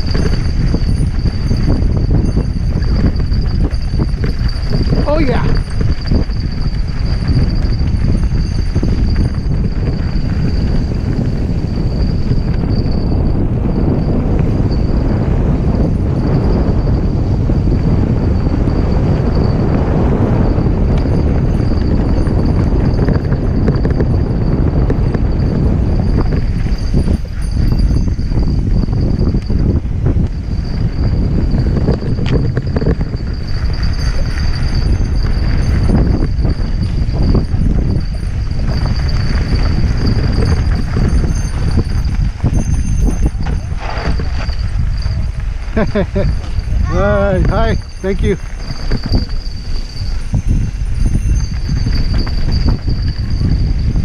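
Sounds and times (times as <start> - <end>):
mountain bike rattling on rocks: 0.0 - 54.0
wind buffeting microphone: 0.0 - 54.0
thin high tone: 0.6 - 9.5, 25.4 - 54.0
tyres on dirt: 38.3 - 47.0.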